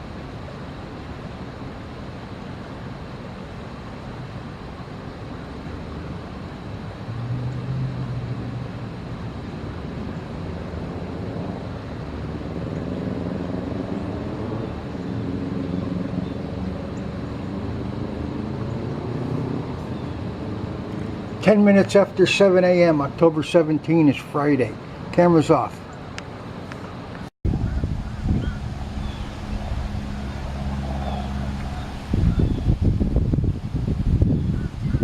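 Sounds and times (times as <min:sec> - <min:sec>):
road traffic rumble: 0:00.0 - 0:35.0
vehicle engine pulling away: 0:07.0 - 0:09.4, 0:27.5 - 0:33.4.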